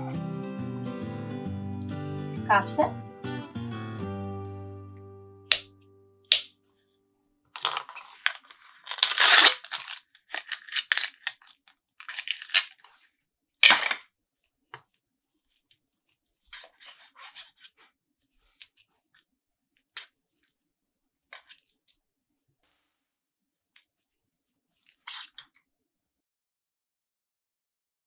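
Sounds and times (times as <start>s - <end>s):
plastic pieces clicking: 7.6s - 12.9s, 13.6s - 14.0s
plastic wrapping tearing and crinkling: 7.6s - 13.0s.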